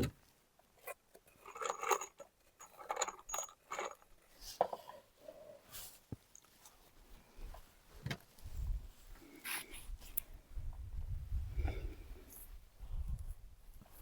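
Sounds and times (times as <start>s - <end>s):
small hard objects clinking: 1.2s - 4.2s.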